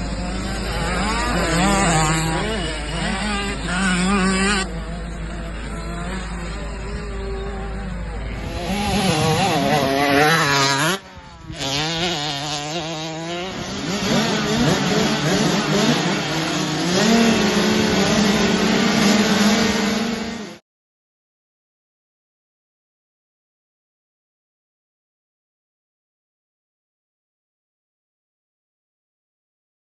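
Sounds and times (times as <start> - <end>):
motocross bike engine revving: 0.0 - 20.6.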